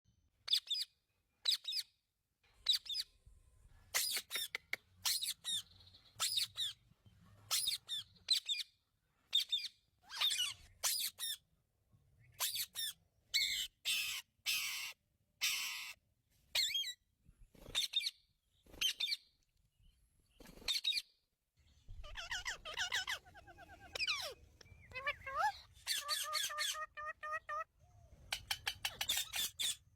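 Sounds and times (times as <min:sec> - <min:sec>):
parakeet harsh screeches: 0:23.9 - 0:27.0.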